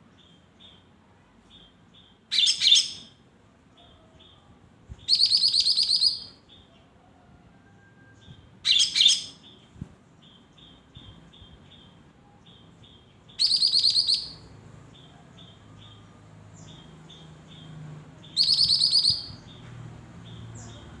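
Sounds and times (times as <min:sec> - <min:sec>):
bird singing trilled notes: 0:05.1 - 0:06.4, 0:10.2 - 0:19.6.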